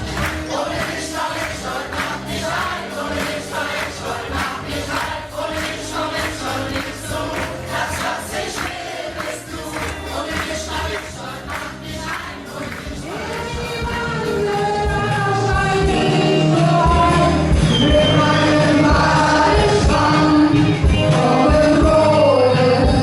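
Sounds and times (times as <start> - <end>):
steady drum beat: 0.0 - 22.2
band playing upbeat song: 0.0 - 23.0
group of people singing: 0.0 - 23.0.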